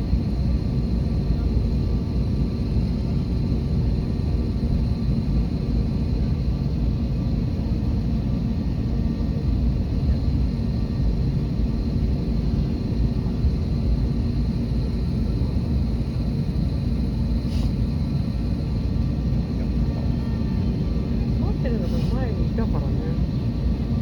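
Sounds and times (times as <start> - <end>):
jet engine rumble: 0.0 - 24.0
faint steady tones: 19.2 - 23.4.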